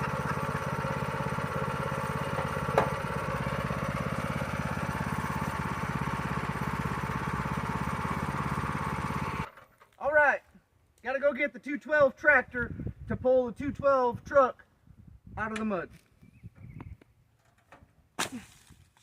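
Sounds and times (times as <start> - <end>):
small engine chuffing: 0.0 - 9.7.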